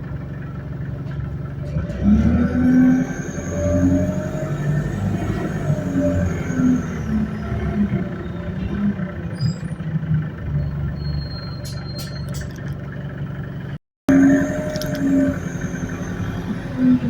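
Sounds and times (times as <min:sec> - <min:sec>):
bus engine rumbling: 0:00.0 - 0:17.0
rattling clicks: 0:14.5 - 0:15.2.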